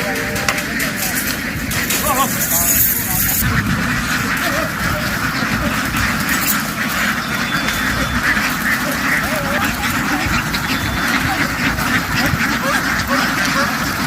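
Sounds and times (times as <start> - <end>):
flock of ducks quacking: 0.0 - 14.0.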